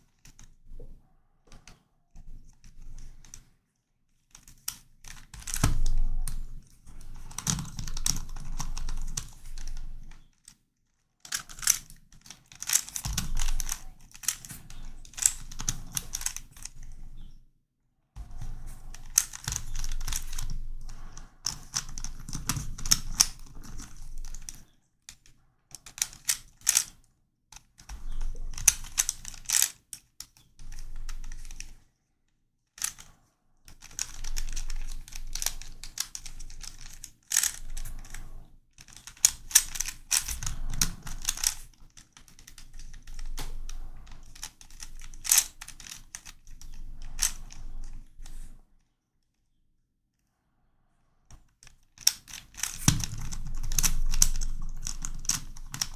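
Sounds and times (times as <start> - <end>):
plastic puzzle clicking: 7.2 - 9.8, 11.3 - 16.8, 18.8 - 24.7, 25.8 - 27.0, 27.6 - 29.8, 32.8 - 33.1, 33.7 - 38.2, 38.8 - 48.4, 52.0 - 55.9.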